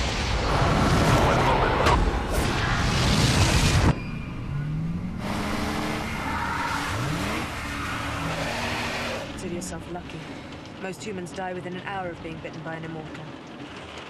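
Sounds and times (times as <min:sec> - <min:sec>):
loud rushing noise: 0:00.0 - 0:04.0
car engine revving: 0:00.5 - 0:14.0.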